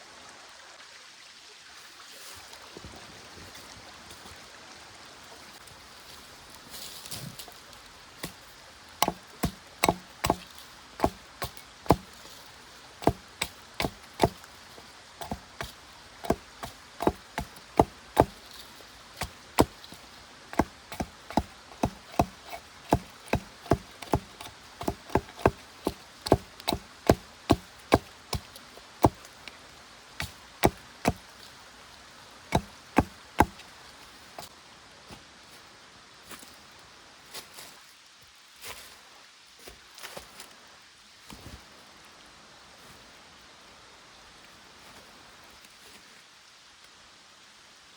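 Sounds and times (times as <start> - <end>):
chopping knocks on wood: 9.0 - 12.1, 13.0 - 14.4, 15.2 - 18.4, 19.2 - 19.9, 20.6 - 29.2, 30.2 - 31.2, 32.5 - 33.6.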